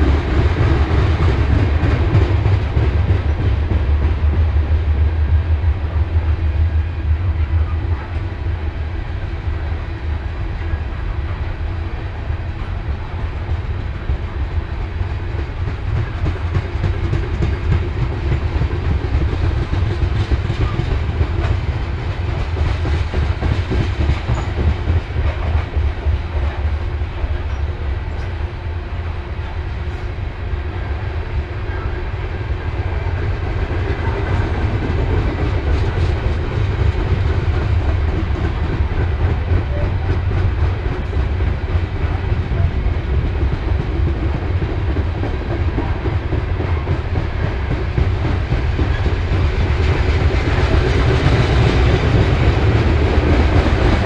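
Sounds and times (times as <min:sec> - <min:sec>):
train cars rumbling past: 0:00.0 - 0:54.0
wheels clickety-clack over rails: 0:00.0 - 0:54.0.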